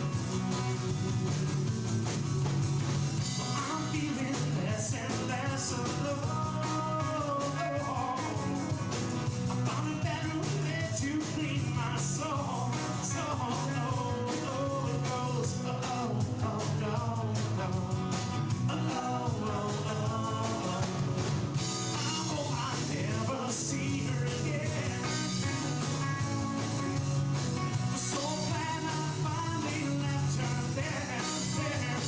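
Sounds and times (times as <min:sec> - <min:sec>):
rock band playing: 0:00.0 - 0:32.0
steady drum hits: 0:00.0 - 0:32.0
person singing: 0:03.4 - 0:08.6, 0:09.5 - 0:21.0, 0:22.0 - 0:26.9, 0:28.0 - 0:32.0.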